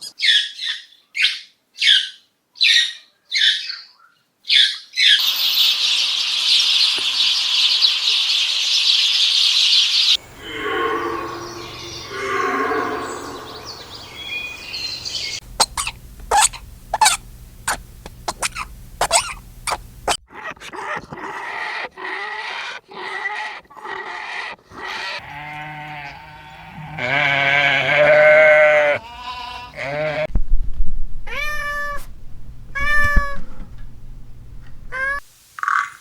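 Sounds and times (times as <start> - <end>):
cat meowing: 31.3 - 32.1, 32.7 - 33.5, 34.9 - 35.2.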